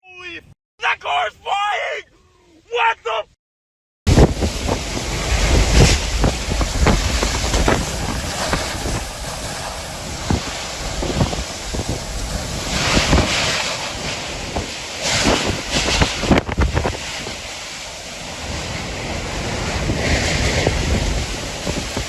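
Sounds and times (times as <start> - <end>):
heavy low rumble: 4.1 - 12.7
rush of wind and water: 4.1 - 22.0
wind buffeting microphone: 4.1 - 22.0.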